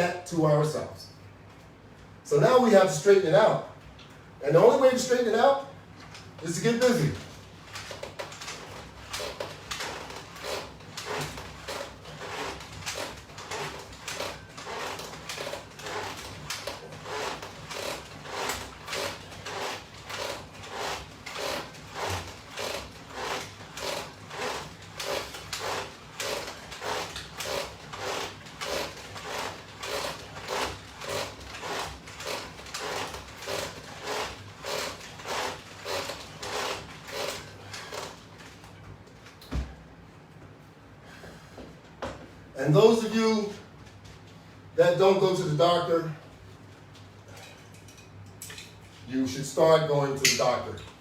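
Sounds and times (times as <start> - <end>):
resistance band rubbing and creaking: 6.4 - 38.8.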